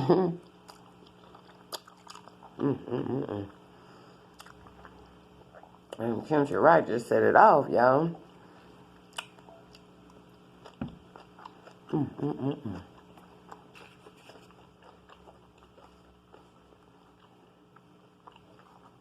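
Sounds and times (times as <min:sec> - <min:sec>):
chewing and wet mouth clicks: 0:00.7 - 0:02.5, 0:04.4 - 0:05.0, 0:09.1 - 0:11.9
person humming mmm: 0:02.5 - 0:03.7, 0:11.9 - 0:13.0.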